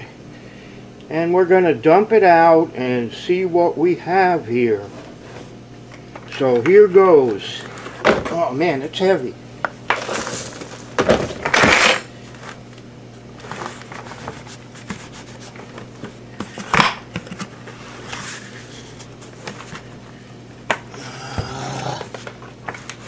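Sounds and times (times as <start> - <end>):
scrapes and rubbing of plastic: 13.4 - 19.9.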